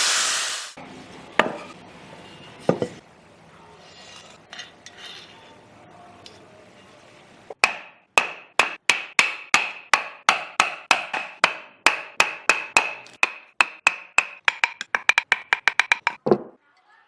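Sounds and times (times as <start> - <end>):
hammer striking: 7.6 - 16.5.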